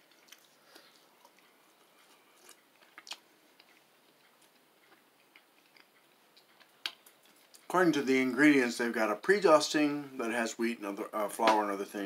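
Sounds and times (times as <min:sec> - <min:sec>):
mouth clicks while chewing: 0:00.1 - 0:07.7.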